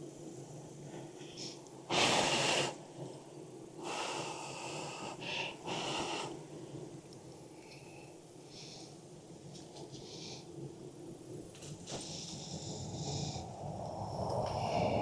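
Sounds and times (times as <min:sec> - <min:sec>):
puffs of rushing air: 0:14.4 - 0:15.0.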